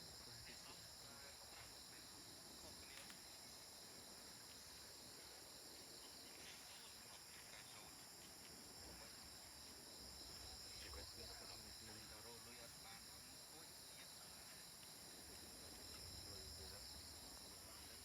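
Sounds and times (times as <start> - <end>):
high-pitched insect chorus: 0.0 - 18.0
faint ticks: 2.8 - 3.2.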